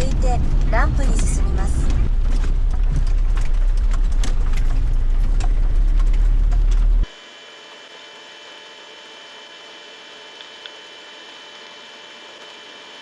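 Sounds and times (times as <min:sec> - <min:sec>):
vehicle engine rumble: 0:00.0 - 0:07.1.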